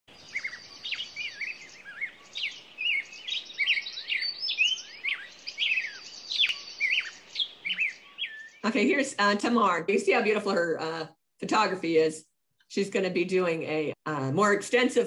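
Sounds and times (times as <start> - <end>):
high bird trill: 0.1 - 8.8
bird chirps and whistles: 0.2 - 8.6.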